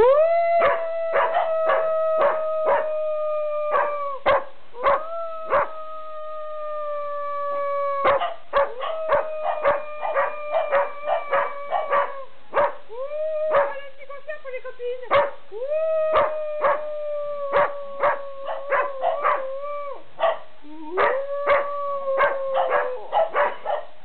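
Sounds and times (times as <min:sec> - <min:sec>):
dogs howling: 0:00.0 - 0:13.9, 0:15.2 - 0:23.9
dogs barking sharply: 0:22.6 - 0:24.0.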